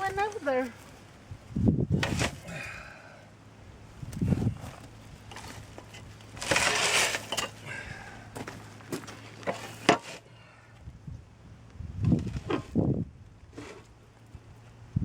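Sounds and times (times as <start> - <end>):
metal parts scraping: 5.3 - 7.7, 9.4 - 10.3.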